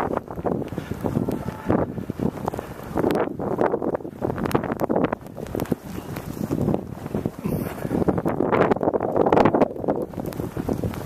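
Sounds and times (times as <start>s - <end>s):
gusty wind buffeting microphone: 0.0s - 11.0s.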